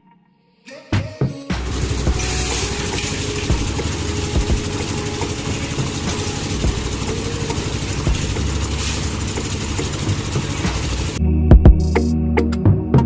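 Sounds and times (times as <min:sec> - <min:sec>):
small motor running: 0:01.6 - 0:11.2.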